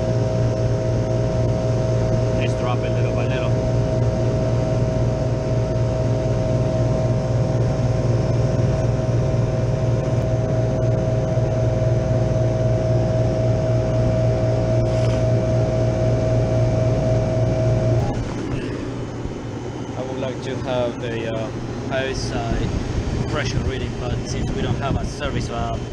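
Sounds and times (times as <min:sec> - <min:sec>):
refrigeration compressor hum: 0:00.0 - 0:25.9
steady whine: 0:00.0 - 0:25.9.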